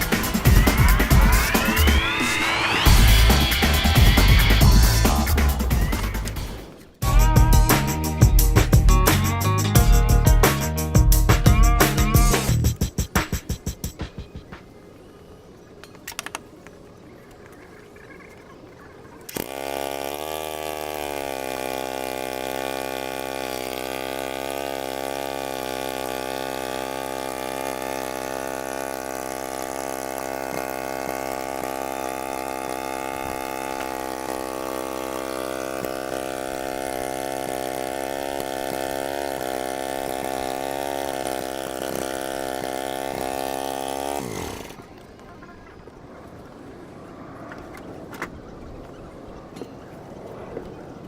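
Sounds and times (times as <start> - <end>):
garden tractor engine running: 0.0 - 13.1, 19.3 - 45.3.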